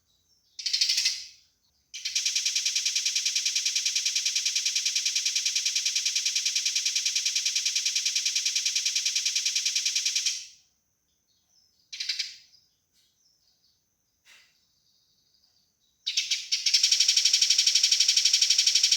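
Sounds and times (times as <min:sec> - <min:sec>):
sparrow chattering call: 0:00.6 - 0:01.3
short bird chirp: 0:14.2 - 0:14.8.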